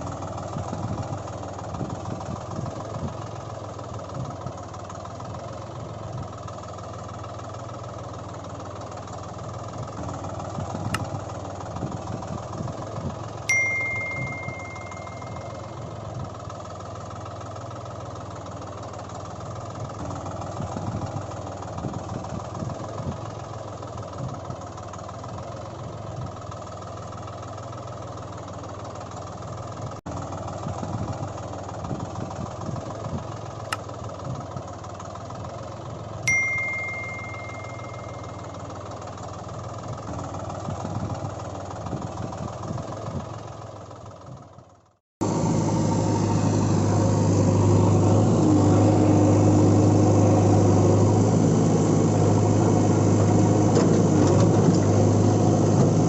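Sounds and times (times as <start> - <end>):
diesel engine running: 0.0 - 56.0
clear ringing tone: 13.5 - 16.0, 36.3 - 38.9.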